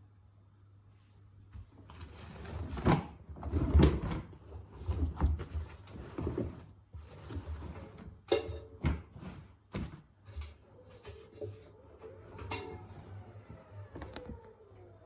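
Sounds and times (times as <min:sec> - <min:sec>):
washing machine knocking and thumping: 0:07.9 - 0:10.6.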